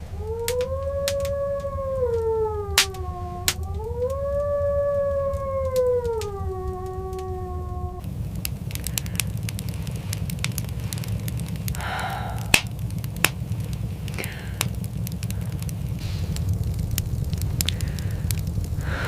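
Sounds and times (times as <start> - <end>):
wolf howl: 0.0 - 8.0
fire crackling and popping: 0.0 - 19.0.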